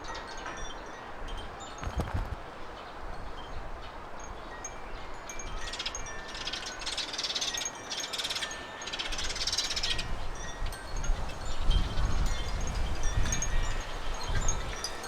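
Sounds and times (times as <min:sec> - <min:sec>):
low wind rumble: 0:00.6 - 0:06.4, 0:09.3 - 0:15.0.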